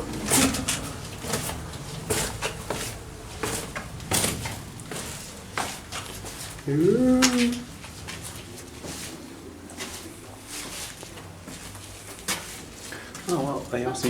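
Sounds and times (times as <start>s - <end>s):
footsteps on rough stone: 0.0s - 9.2s.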